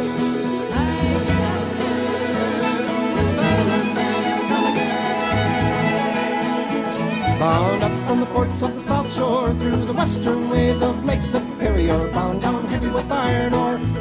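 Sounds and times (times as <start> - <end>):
fiddle sliding melody: 0.0 - 14.0
string band accompaniment: 0.0 - 14.0.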